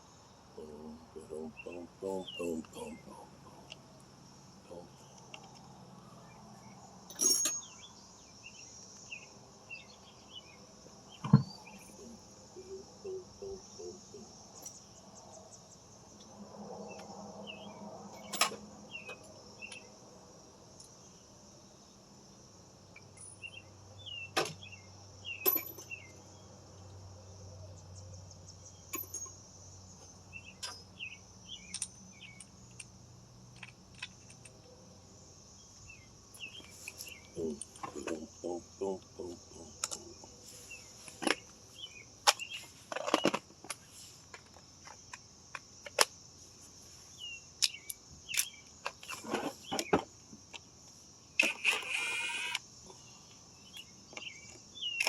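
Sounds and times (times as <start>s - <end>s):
faint chirps: 0.0s - 16.3s, 35.6s - 42.8s
insect chirring: 0.0s - 55.0s.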